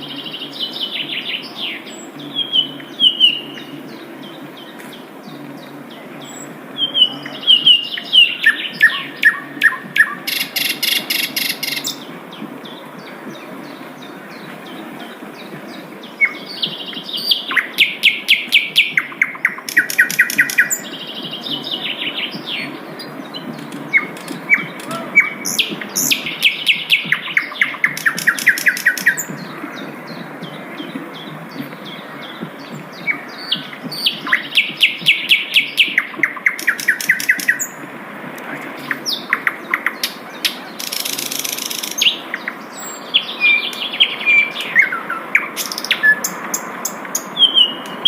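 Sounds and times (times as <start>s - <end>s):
flycatcher singing: 0.0s - 37.8s
low background noise: 0.0s - 48.0s.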